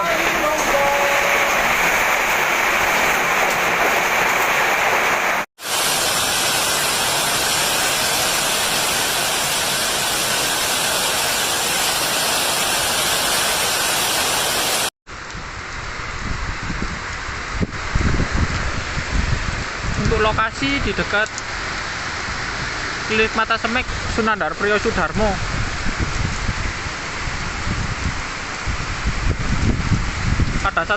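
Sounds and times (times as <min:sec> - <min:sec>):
heavy rain with hail: 0:00.0 - 0:30.9.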